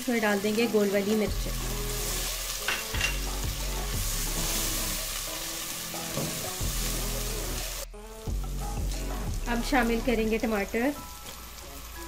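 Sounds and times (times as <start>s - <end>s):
background music: 0.0s - 12.0s
onion sizzling in hot oil: 0.0s - 12.0s.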